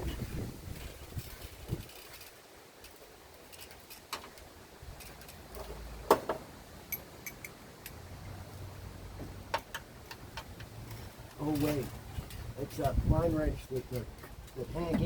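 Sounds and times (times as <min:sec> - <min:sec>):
metal hand tools clinking: 0:06.9 - 0:08.0.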